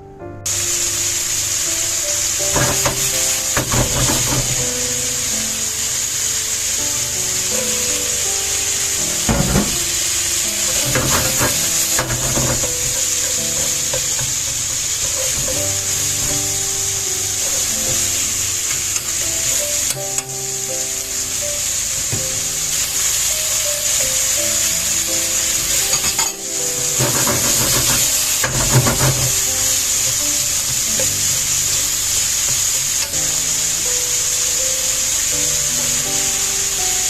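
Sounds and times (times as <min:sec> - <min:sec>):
food sizzling in a frying pan: 0:00.4 - 0:37.0
utensil clattering against pan: 0:02.4 - 0:04.8, 0:09.2 - 0:20.0, 0:25.7 - 0:31.2.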